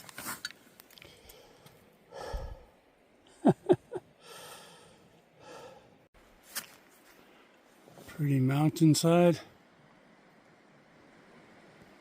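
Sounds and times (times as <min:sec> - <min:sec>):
man breathing hard and sighing: 0:01.0 - 0:02.9, 0:04.2 - 0:06.1.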